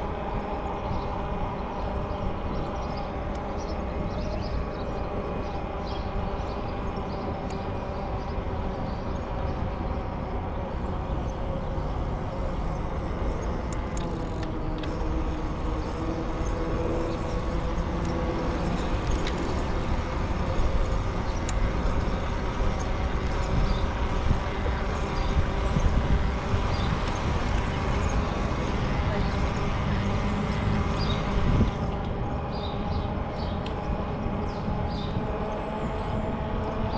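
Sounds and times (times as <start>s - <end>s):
bicycle tyres rumbling on path: 10.8s - 32.3s.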